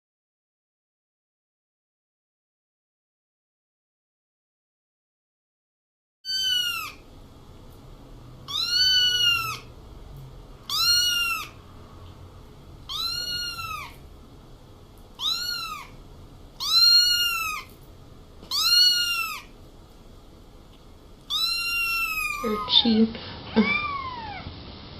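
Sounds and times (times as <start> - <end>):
cat meowing: 6.3 - 7.0, 8.5 - 9.7, 10.6 - 11.6, 12.8 - 14.0, 15.2 - 16.0, 16.6 - 17.7, 18.5 - 19.5, 21.3 - 24.5.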